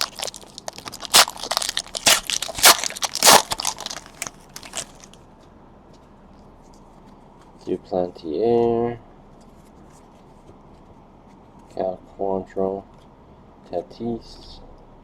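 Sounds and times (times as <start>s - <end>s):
card wrappers crinkling: 0.0s - 5.2s.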